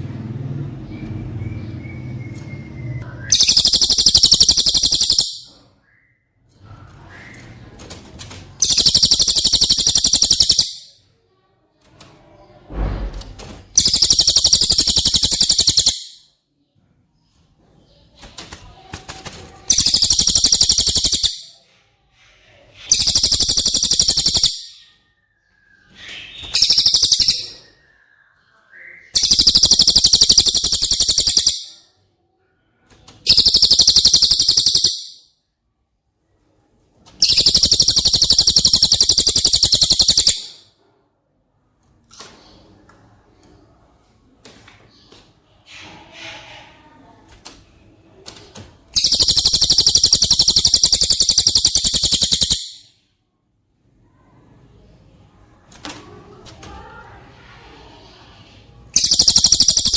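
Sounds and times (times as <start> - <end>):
songbird buzzy trill: 3.3 - 5.5, 8.6 - 10.9, 13.8 - 16.2, 19.7 - 21.5, 22.9 - 24.8, 26.4 - 27.6, 29.2 - 31.8, 33.3 - 35.2, 37.2 - 40.6, 48.9 - 52.9, 59.0 - 59.9.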